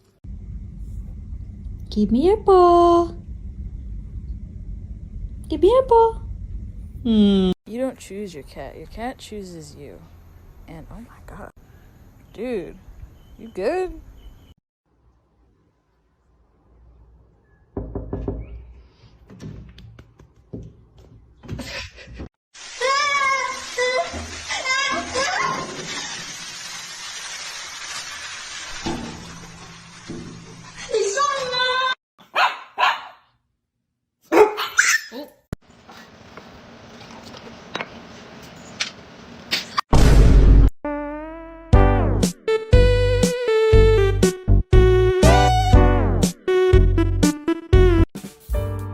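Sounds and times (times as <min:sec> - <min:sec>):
irregular knocks and thumps: 0:17.8 - 0:22.3
dog barking: 0:32.2 - 0:33.3, 0:34.3 - 0:35.4.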